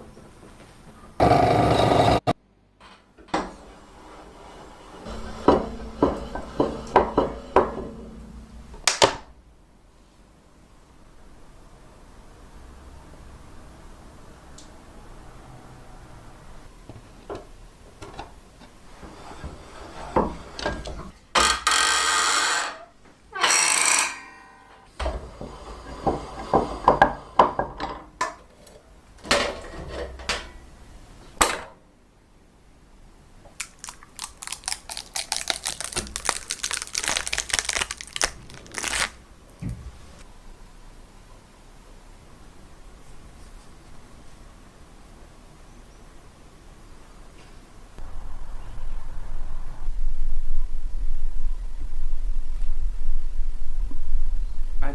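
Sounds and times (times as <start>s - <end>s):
metal parts and tools knocking: 5.0s - 9.3s.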